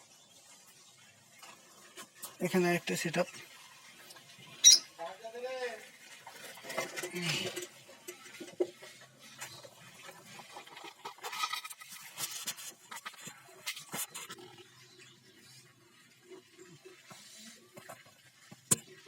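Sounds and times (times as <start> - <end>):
birds rustling and scratching: 0.3 - 5.0, 5.8 - 19.0
harsh bird chirps: 4.6 - 5.0.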